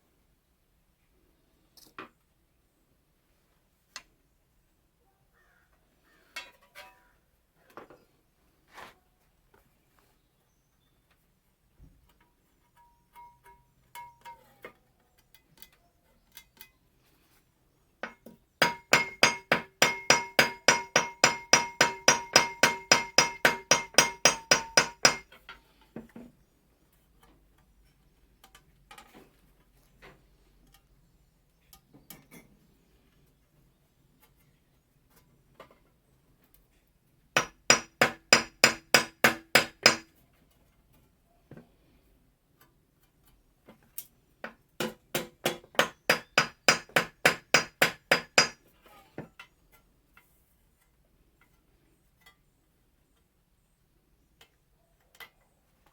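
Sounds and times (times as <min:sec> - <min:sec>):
hammer striking scythe blade: 0:18.0 - 0:25.2, 0:37.4 - 0:40.0.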